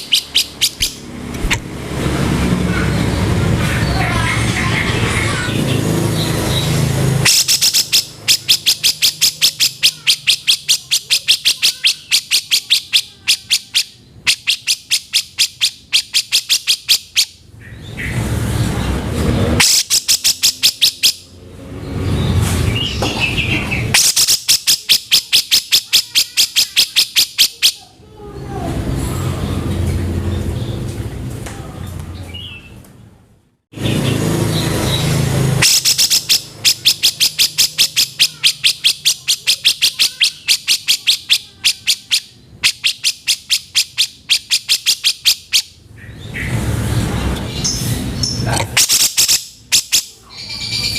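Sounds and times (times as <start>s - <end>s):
bird harsh rasping rattle: 0.0s - 1.7s, 5.6s - 17.4s, 19.6s - 21.2s, 23.9s - 27.8s, 34.4s - 45.6s.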